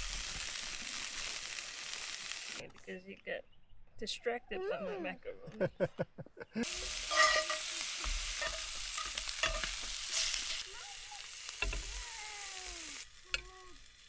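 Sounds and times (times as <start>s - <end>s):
meat sizzling in a pan: 0.0s - 2.6s, 6.6s - 14.0s.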